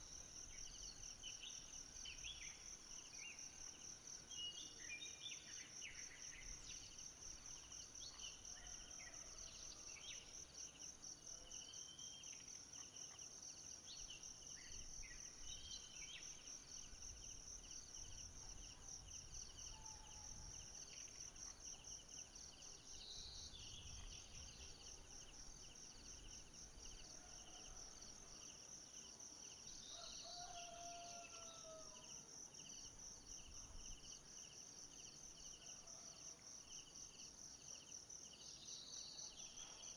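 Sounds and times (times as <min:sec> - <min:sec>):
low insect trill: 0:13.9 - 0:35.6.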